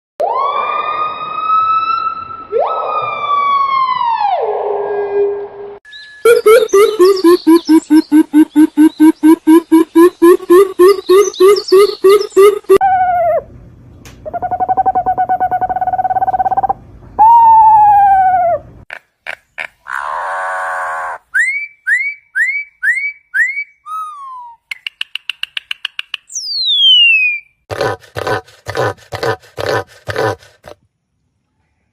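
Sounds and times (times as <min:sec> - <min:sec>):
bird calls: 0:06.2 - 0:12.8.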